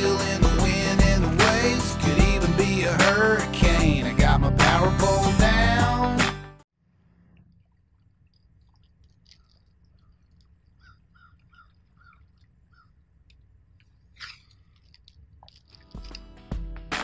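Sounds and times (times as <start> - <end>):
birds chirping: 9.3 - 14.8.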